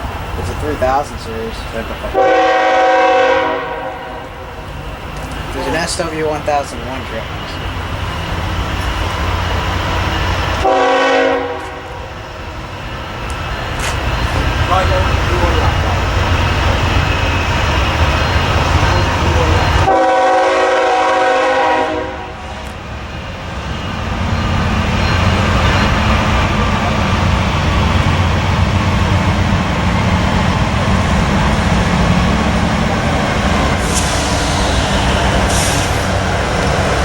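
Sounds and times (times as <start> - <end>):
diesel locomotive and train rumbling: 0.0 - 37.0
locomotive horn chord: 2.1 - 4.5, 10.6 - 12.0, 19.9 - 22.4.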